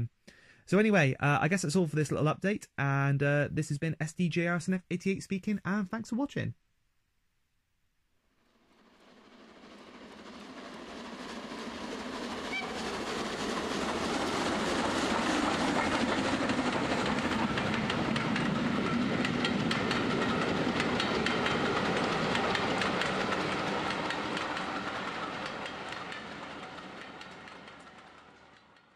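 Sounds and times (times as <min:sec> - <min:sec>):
train wheels clickety-clack: 0:08.8 - 0:28.9.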